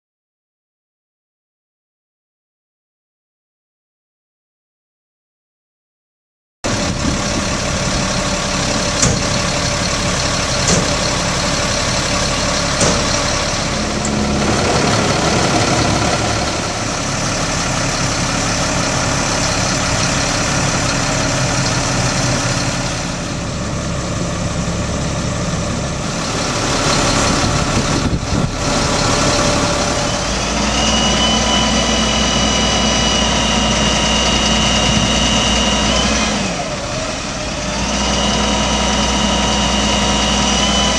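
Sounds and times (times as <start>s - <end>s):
high whine: 6.7s - 24.2s
diesel truck engine idling: 6.7s - 40.9s.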